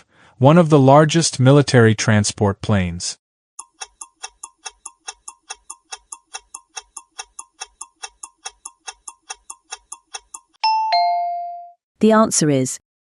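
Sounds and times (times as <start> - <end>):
fast clock-like ticking: 3.6 - 10.6.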